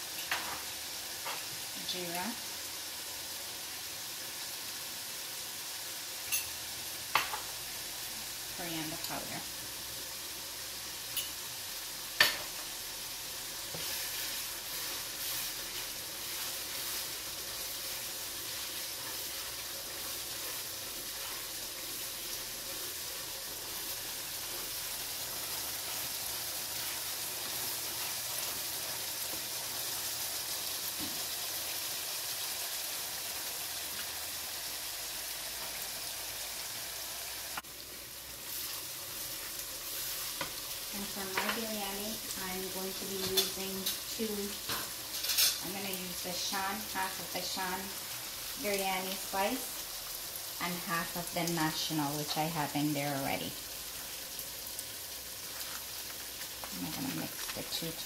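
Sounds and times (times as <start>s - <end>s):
spices sizzling in hot oil: 0.0s - 58.0s
wooden spoon stirring: 25.3s - 29.9s.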